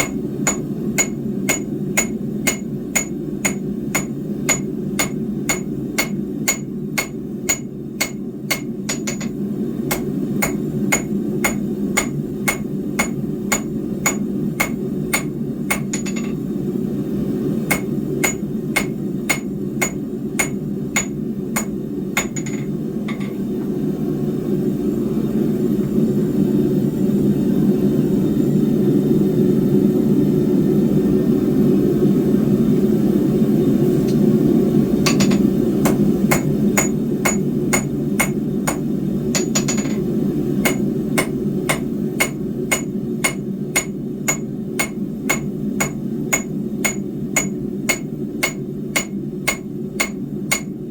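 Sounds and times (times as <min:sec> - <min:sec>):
hammer striking steel on anvil: 0:00.0 - 0:16.4, 0:17.7 - 0:23.4, 0:35.0 - 0:50.8.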